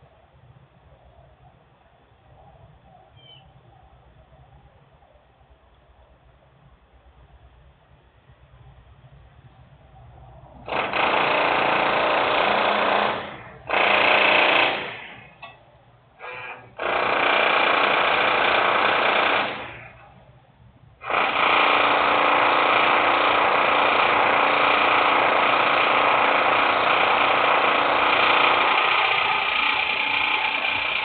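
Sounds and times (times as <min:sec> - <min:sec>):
loud industrial machinery noise: 0:21.0 - 0:31.0.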